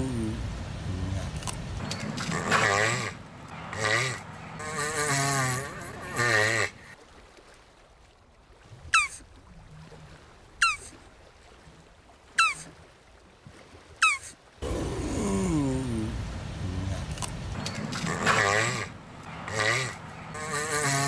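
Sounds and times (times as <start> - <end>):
tortoise bleat-like call: 0.0 - 6.9, 14.0 - 21.0.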